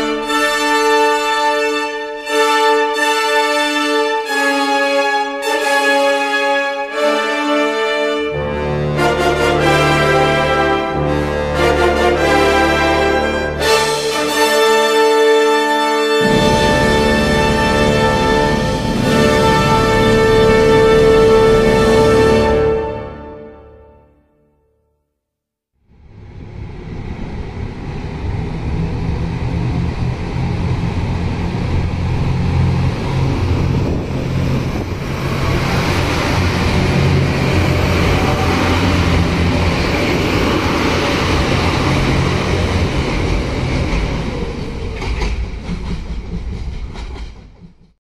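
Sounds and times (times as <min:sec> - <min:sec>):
diesel engines droning: 0:16.2 - 0:22.8, 0:26.0 - 0:45.6
wheels rushing on rails: 0:16.2 - 0:22.8, 0:25.9 - 0:48.0.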